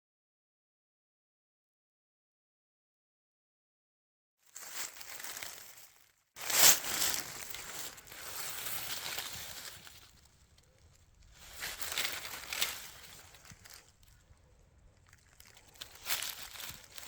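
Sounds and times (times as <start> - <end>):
dry leaves rustling and crunching: 4.5 - 17.0.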